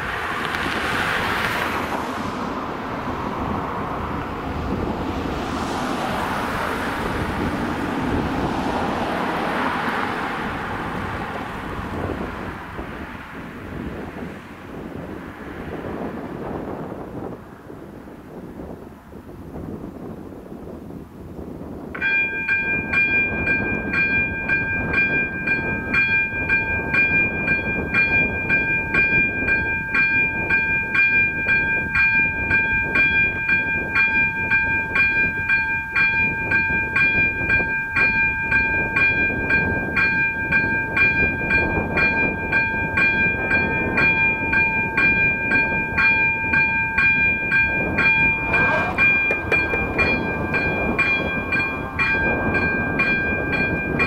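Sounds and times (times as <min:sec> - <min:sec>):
electronic warning bell ringing: 0:22.0 - 0:54.0.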